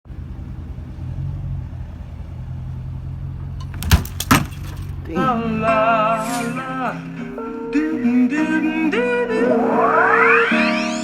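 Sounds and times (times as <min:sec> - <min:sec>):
car engine rumbling: 0:00.0 - 0:09.0.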